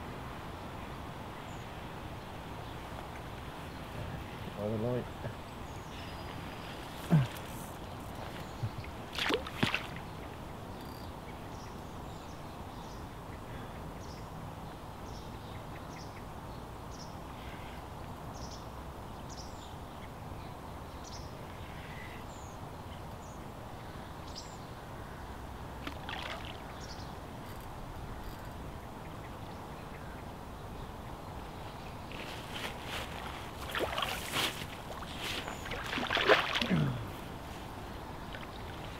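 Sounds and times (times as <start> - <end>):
river water: 0.0 - 19.1, 19.7 - 38.9
wind: 0.0 - 38.9
scuffle: 32.1 - 35.6.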